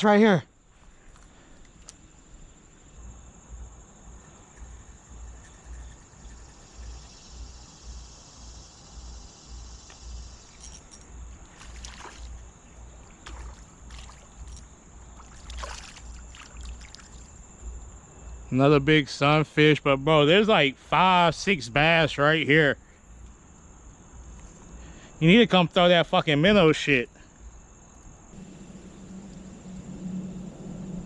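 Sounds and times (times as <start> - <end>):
water moving: 10.5 - 17.4, 28.4 - 31.0
steady thin high whine: 28.4 - 31.0.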